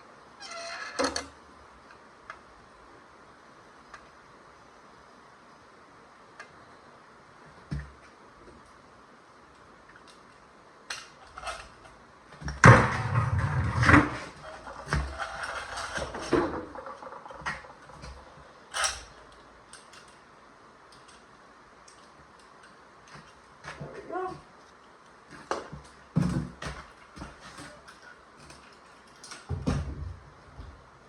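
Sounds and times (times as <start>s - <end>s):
metal parts rattling: 14.3s - 20.2s
metal tools clattering: 14.4s - 20.2s.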